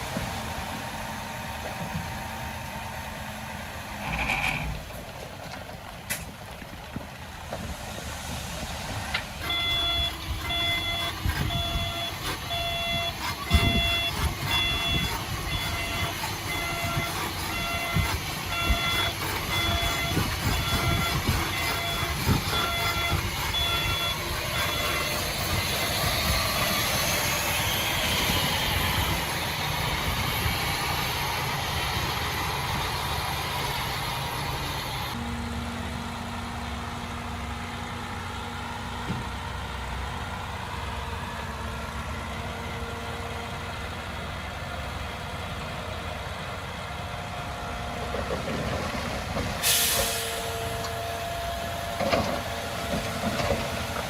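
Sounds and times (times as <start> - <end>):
diesel engines running: 0.0 - 54.0
short hiss: 49.6 - 50.7.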